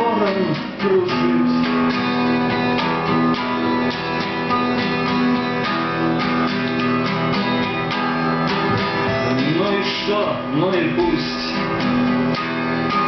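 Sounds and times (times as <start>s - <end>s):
person singing: 0.0s - 1.8s, 8.7s - 11.6s
acoustic guitars strumming: 0.0s - 13.0s.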